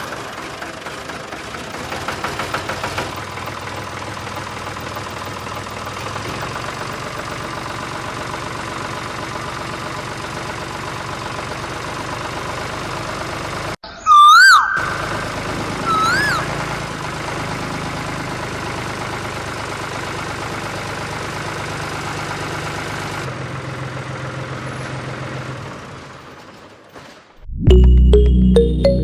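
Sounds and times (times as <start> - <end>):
whistle-like chirp: 13.8 - 16.6.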